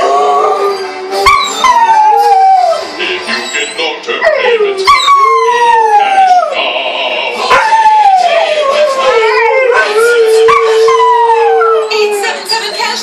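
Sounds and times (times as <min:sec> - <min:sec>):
dogs howling: 0:00.0 - 0:02.8, 0:04.2 - 0:06.6, 0:07.4 - 0:12.4.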